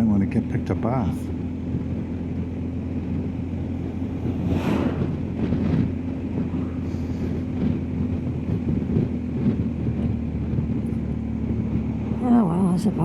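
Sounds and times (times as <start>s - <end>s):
motorcycle engine running: 0.0s - 13.0s
wind noise: 1.3s - 13.0s
brief rush of noise: 4.1s - 5.7s.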